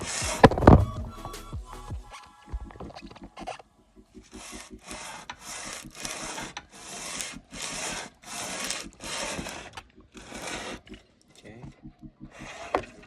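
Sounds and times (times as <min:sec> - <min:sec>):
metal scraping on sandpaper: 0:04.3 - 0:11.0.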